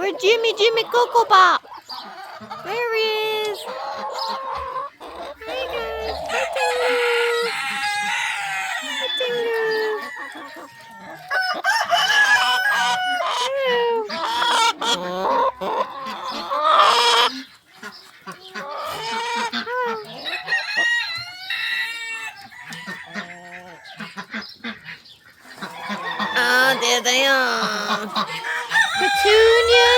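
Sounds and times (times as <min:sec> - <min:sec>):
chickens clucking: 0:00.0 - 0:29.9
rooster crowing: 0:06.5 - 0:13.3, 0:20.3 - 0:24.0, 0:25.8 - 0:27.0, 0:28.3 - 0:29.9.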